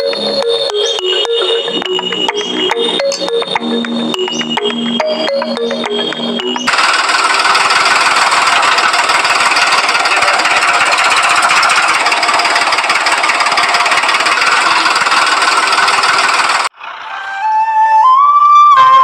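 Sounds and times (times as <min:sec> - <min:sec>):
small diesel engine knocking: 0:06.7 - 0:16.7.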